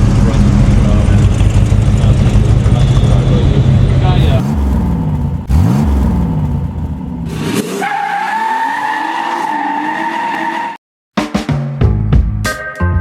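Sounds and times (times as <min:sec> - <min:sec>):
car engine revving: 0:00.0 - 0:10.8
high-pitched tyre squeal: 0:07.3 - 0:10.8.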